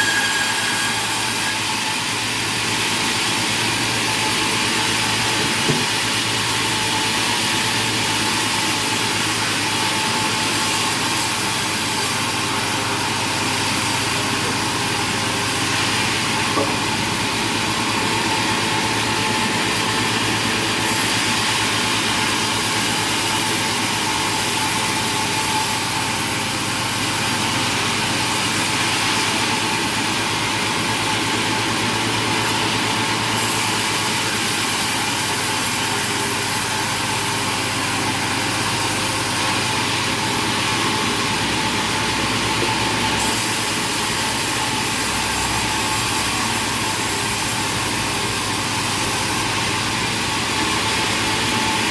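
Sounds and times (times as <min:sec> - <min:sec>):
sawmill machinery running: 0:00.0 - 0:51.9.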